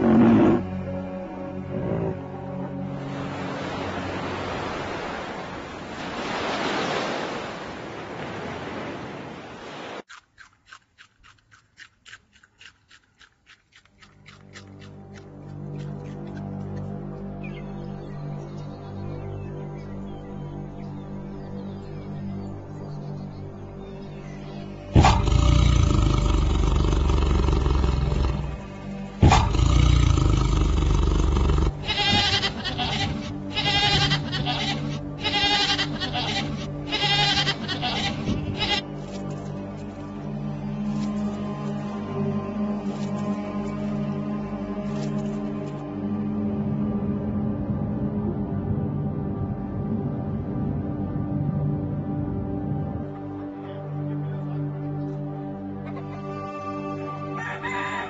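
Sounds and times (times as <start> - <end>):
tiger growling: 0.0 - 0.8, 1.6 - 2.4, 24.9 - 33.4
sea water washing over sand: 3.1 - 10.1.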